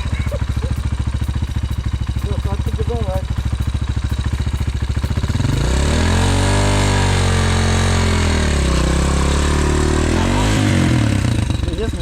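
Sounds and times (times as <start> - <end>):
motorbike engine idling and revving: 0.0 - 12.0.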